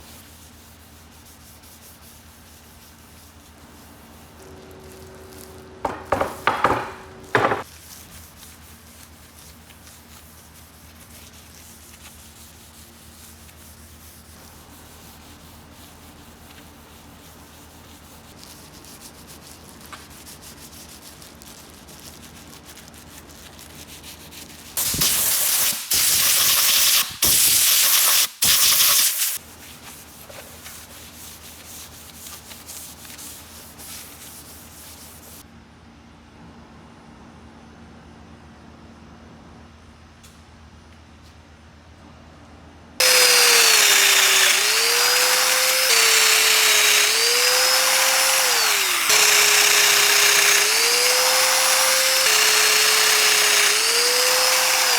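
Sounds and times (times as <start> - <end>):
wood being sanded: 5.8 - 29.1, 43.0 - 54.9.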